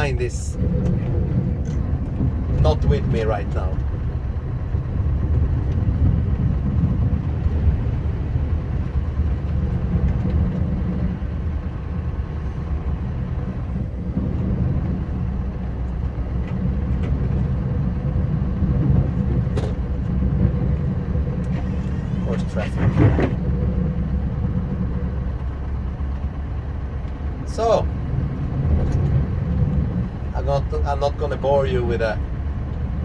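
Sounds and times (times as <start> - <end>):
truck engine rumbling: 0.0 - 33.0.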